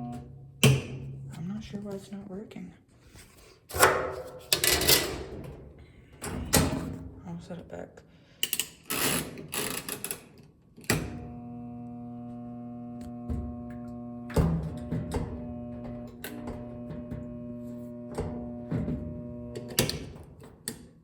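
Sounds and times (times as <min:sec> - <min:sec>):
washing machine motor humming: 0:00.0 - 0:01.9, 0:10.9 - 0:20.4.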